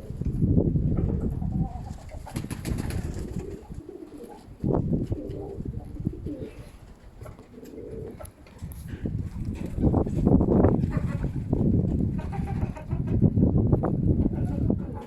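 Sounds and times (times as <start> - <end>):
wind on microphone: 0.0 - 15.0
pigeons cooing: 1.1 - 10.0, 14.2 - 15.0.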